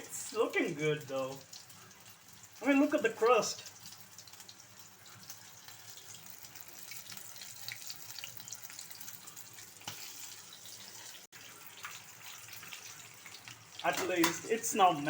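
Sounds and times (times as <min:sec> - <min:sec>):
chicken frying in hot oil: 0:00.0 - 0:15.0.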